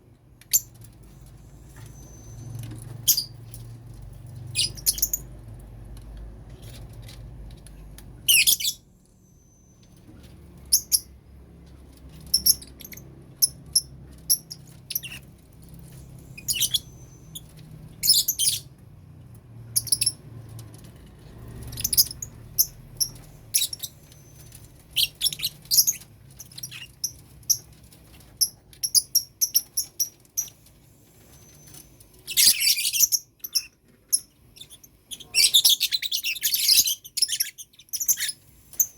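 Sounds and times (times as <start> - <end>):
lovebirds chirping: 0.4 - 3.6, 4.3 - 5.4, 8.2 - 10.0, 12.1 - 18.7, 21.6 - 38.9.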